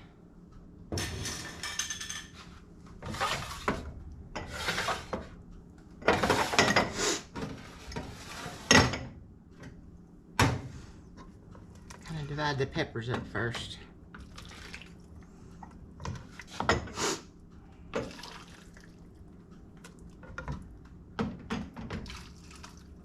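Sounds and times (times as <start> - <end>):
dishes and utensils clattering: 0.9 - 5.3, 6.0 - 9.1.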